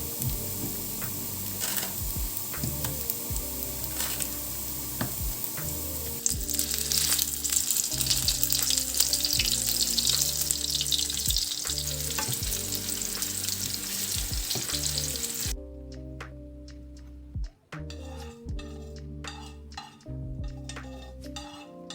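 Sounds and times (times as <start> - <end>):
food sizzling in a pan: 0.0 - 15.5
soft background music: 0.0 - 21.9.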